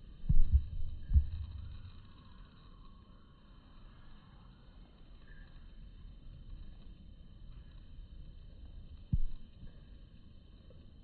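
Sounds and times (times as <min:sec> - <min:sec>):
low rumbling microphone noise: 0:00.0 - 0:02.4.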